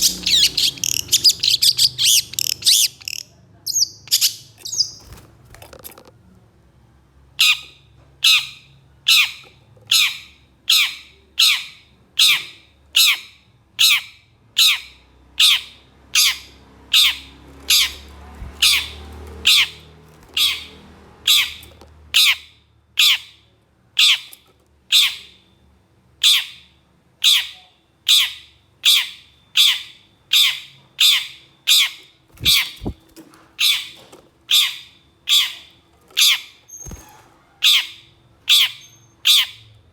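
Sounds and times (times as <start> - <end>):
bird harsh rasping call: 15.4 - 23.4, 27.3 - 33.0.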